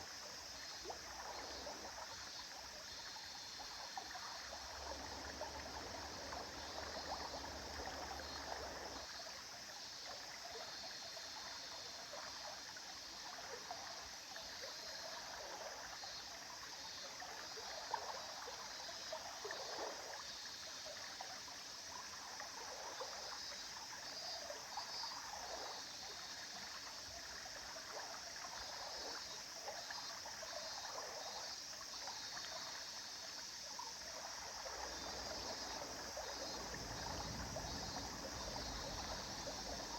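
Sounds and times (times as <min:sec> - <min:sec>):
river flowing over stones: 0:04.5 - 0:09.1, 0:34.0 - 0:39.9.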